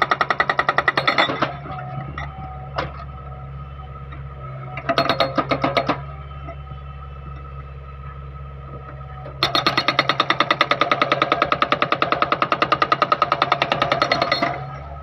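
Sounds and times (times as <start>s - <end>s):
hydraulic breaker hammering: 0.0s - 1.8s, 4.8s - 6.1s, 9.4s - 14.9s
excavator engine running: 0.0s - 15.0s.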